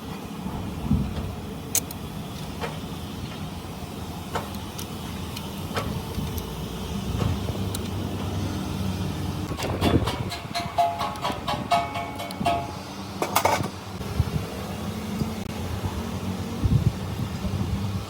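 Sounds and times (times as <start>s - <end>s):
low mechanical rumble: 0.0s - 18.0s.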